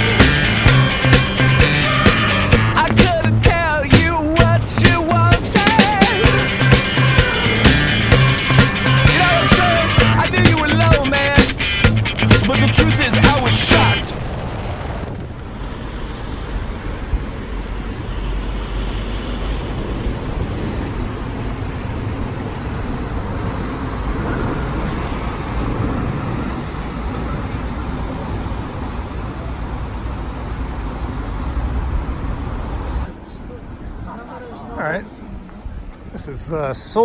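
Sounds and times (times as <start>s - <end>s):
motorcycle engine: 0.0s - 17.7s
wind rushing over microphone: 0.0s - 30.2s
road noise: 0.0s - 37.0s.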